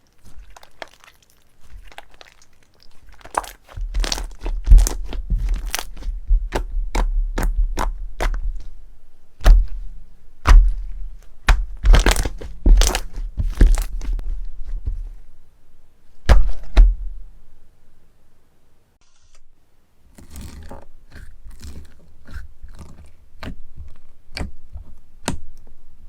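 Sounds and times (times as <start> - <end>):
crunchy slime cracking: 0.0 - 8.6, 11.4 - 14.2.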